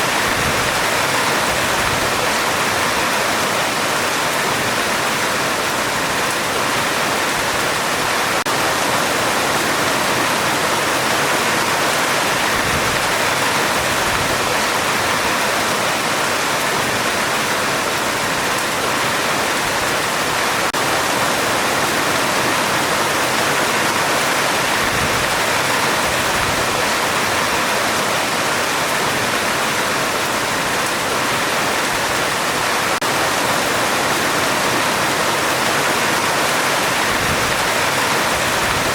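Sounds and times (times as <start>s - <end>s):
heavy rain on a metal roof: 0.0s - 38.9s.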